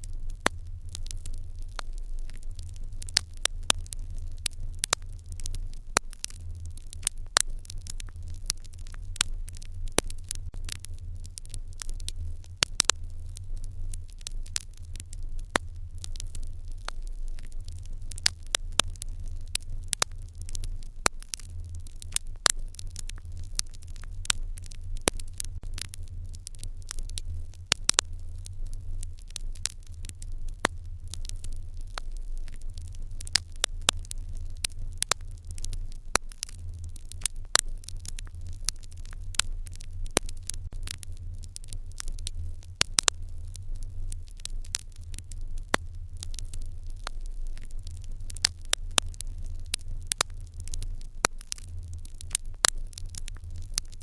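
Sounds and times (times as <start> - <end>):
fire crackling in a hearth: 0.0 - 54.0.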